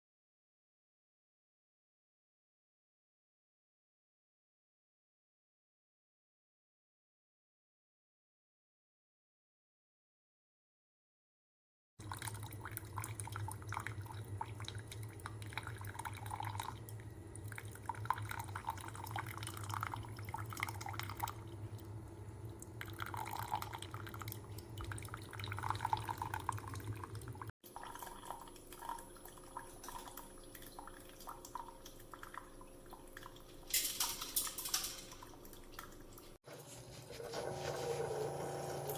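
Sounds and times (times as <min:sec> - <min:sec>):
coffee maker pump hum: 0:12.0 - 0:33.7, 0:36.5 - 0:38.9
coffee dripping into cup: 0:12.0 - 0:36.3.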